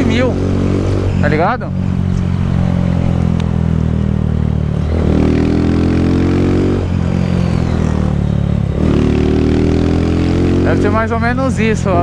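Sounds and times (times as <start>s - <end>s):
motorcycle engine under throttle: 0.0s - 12.0s.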